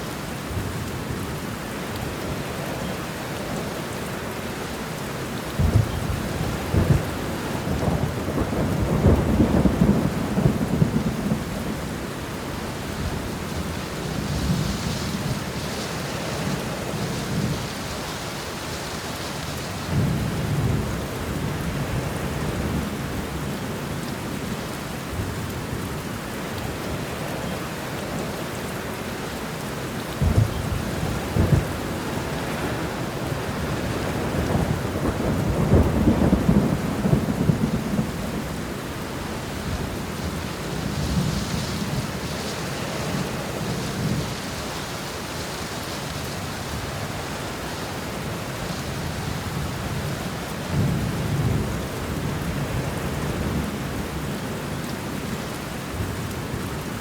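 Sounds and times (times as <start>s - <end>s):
heavy rain: 0.0s - 57.0s
thunder rolling: 30.2s - 44.7s.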